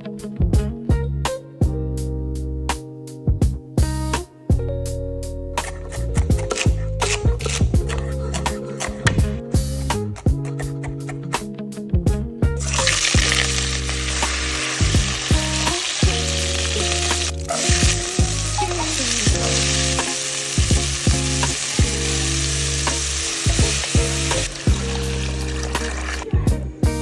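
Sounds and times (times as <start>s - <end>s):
background music: 0.0s - 27.0s
food sizzling in a pan: 12.6s - 26.5s.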